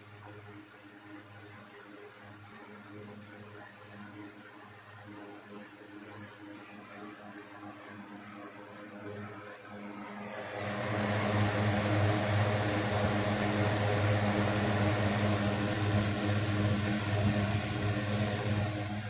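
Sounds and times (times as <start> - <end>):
fan motor hum: 9.7 - 19.0
rush of air from fan blades: 9.9 - 19.0.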